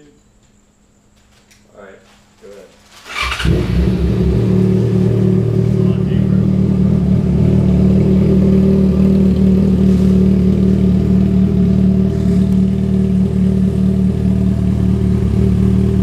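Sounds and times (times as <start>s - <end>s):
motorcycle engine idling: 3.2s - 16.0s.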